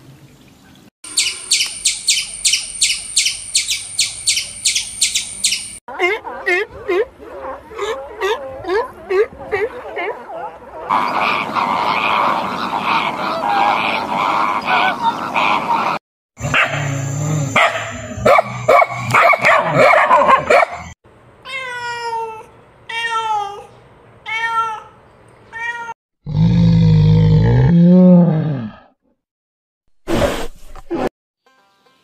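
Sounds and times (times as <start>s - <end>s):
harsh animal calls and clicks: 1.1s - 5.8s, 10.8s - 16.0s
flamingos honking and chattering: 10.9s - 16.0s
bear growling: 26.3s - 28.9s.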